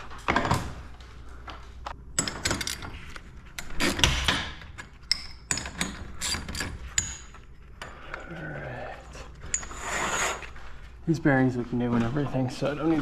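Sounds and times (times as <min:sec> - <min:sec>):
metal hardware clicking and clinking: 0:02.2 - 0:08.3.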